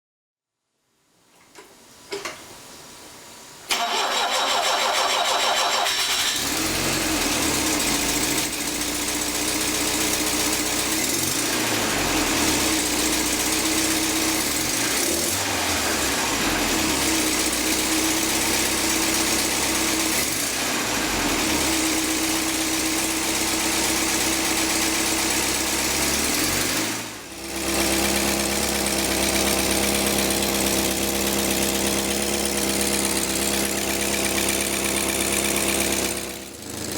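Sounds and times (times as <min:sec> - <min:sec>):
starter motor cranking: 0:03.7 - 0:06.9
car engine running and revving: 0:06.2 - 0:36.9.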